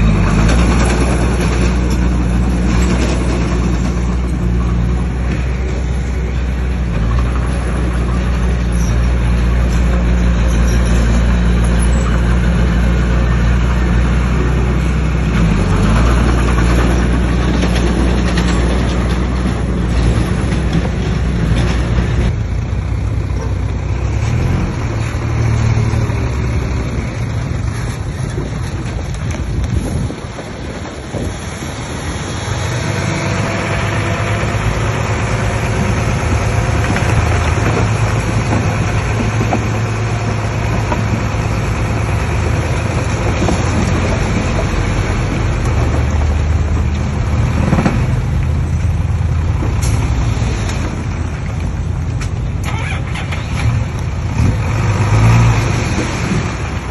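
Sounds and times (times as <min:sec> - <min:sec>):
bulldozer diesel engine under load: 0:00.0 - 0:56.9.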